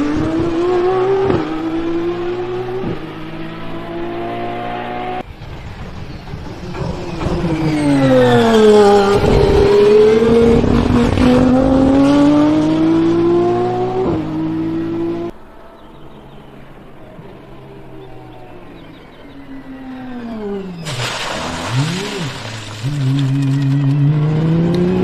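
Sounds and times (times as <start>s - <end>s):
racing car engine passing by: 0.0s - 25.0s.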